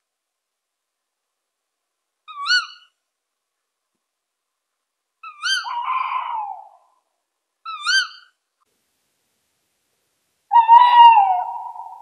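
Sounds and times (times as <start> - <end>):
wavering whistled bird call: 5.3 - 6.6, 10.5 - 12.0.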